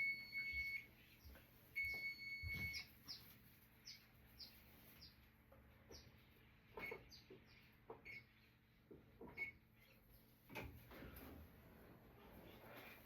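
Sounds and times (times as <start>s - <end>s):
electronic appliance beep: 0.0s - 0.9s, 1.8s - 2.9s, 8.0s - 8.3s, 9.3s - 9.6s.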